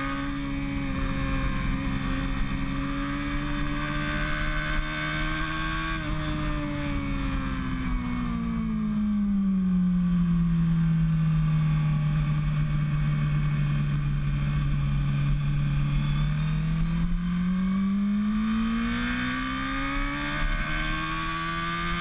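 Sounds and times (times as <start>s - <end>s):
racing motorcycle engine accelerating: 0.0s - 22.0s.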